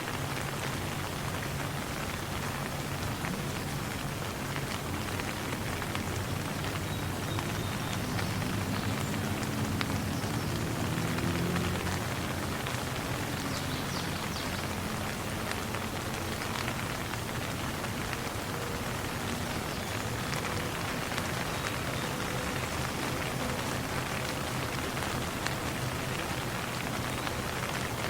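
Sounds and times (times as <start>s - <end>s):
rain falling: 0.0s - 28.0s.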